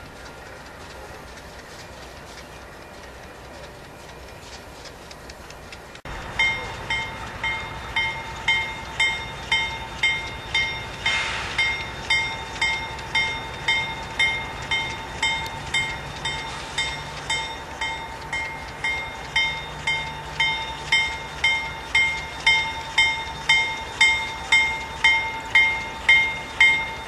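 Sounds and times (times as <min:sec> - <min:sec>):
train rumbling past: 0:00.0 - 0:27.0
railroad crossing bell: 0:06.1 - 0:27.0.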